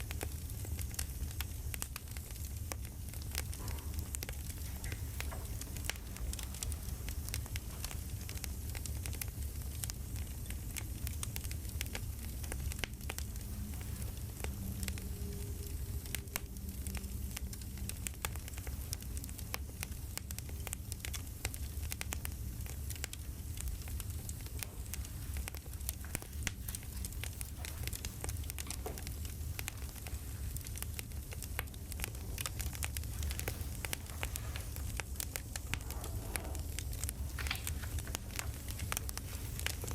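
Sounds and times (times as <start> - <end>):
campfire crackling: 0.0 - 39.9.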